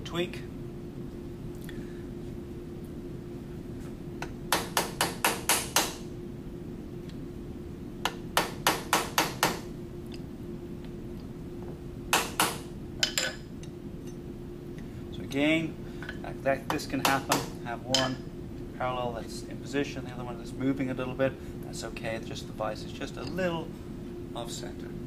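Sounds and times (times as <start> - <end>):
steady hum: 0.0 - 25.0
hammer tapping metal: 4.2 - 6.0, 12.1 - 13.4, 16.7 - 18.2.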